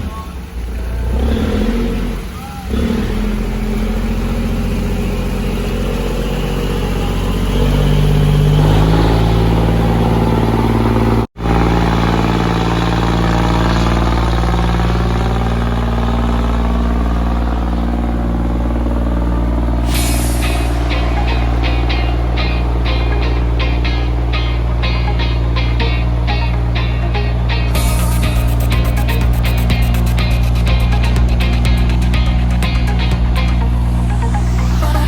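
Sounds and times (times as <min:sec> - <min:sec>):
boat engine running: 0:00.0 - 0:35.0
short burst of noise: 0:19.8 - 0:22.9.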